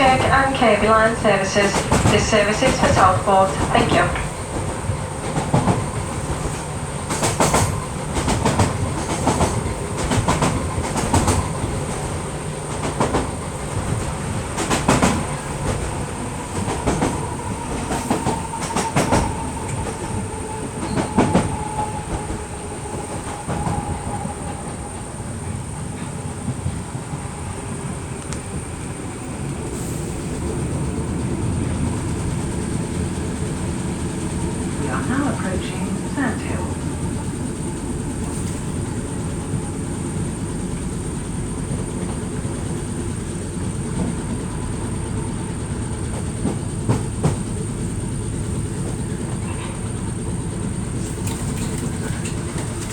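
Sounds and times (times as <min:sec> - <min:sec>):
train rumbling: 0:00.0 - 0:52.9
wheels clicking over rail joints: 0:50.9 - 0:52.9.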